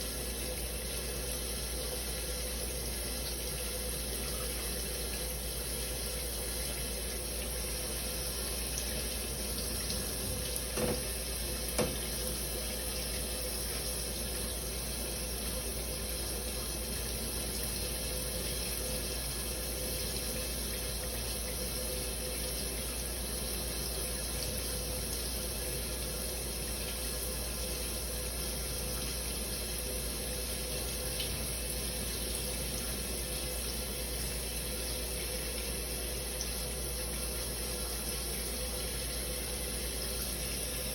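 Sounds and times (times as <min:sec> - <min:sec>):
soft knocks: 0:10.7 - 0:11.1, 0:11.7 - 0:12.1.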